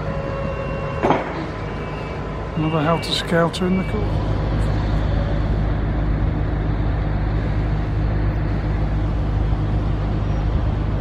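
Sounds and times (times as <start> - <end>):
low engine hum: 0.0 - 11.0
background rumble: 4.1 - 11.0.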